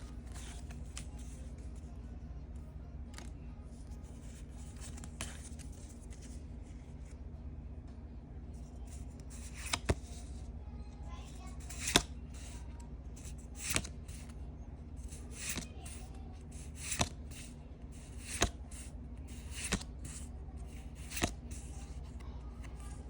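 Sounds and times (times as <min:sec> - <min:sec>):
cards sliding and snapping: 0:00.0 - 0:01.4, 0:04.1 - 0:06.4, 0:09.0 - 0:10.4, 0:11.5 - 0:12.6, 0:13.2 - 0:14.4, 0:15.1 - 0:23.0.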